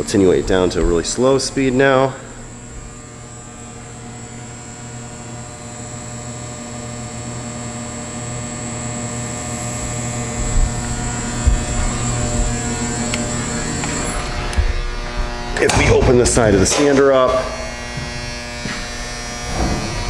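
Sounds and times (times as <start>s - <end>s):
low bumps: 0.0s - 3.7s, 9.4s - 20.0s
conveyor drive humming drone: 0.0s - 20.0s.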